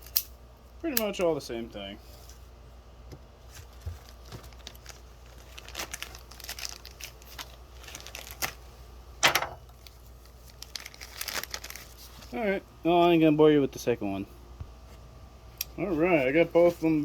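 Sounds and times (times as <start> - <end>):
plastic packaging crinkling: 3.4 - 8.8, 9.6 - 12.6.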